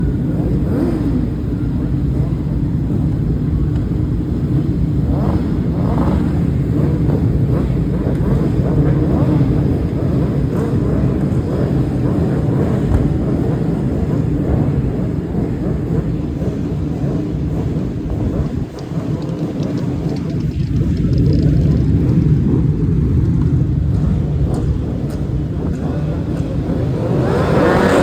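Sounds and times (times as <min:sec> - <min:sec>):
racing motorcycle engines rumbling: 0:00.0 - 0:28.0.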